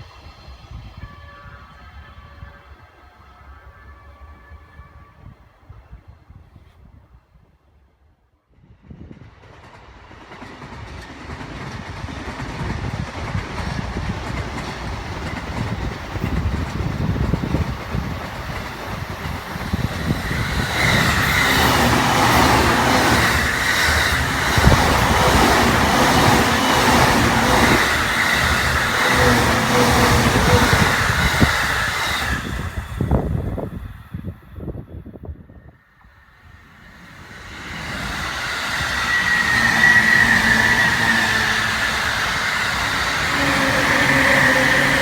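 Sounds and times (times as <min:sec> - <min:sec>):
steady train whine: 0:00.0 - 0:45.0
train wheel clatter: 0:09.0 - 0:33.8, 0:36.8 - 0:45.0
electric train passing: 0:09.0 - 0:45.0.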